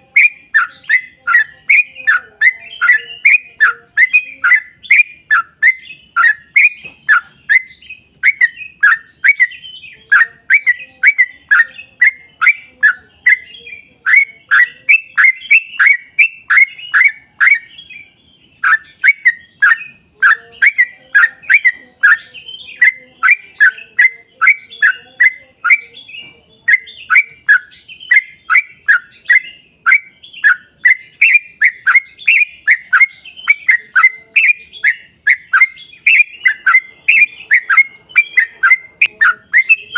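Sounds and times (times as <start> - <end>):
bird singing fast notes: 0.0 - 39.9.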